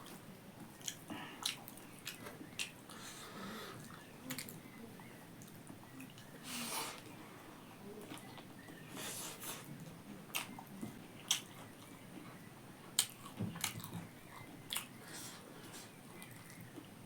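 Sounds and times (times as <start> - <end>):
person chewing and crunching: 0.8 - 3.0, 13.0 - 16.6.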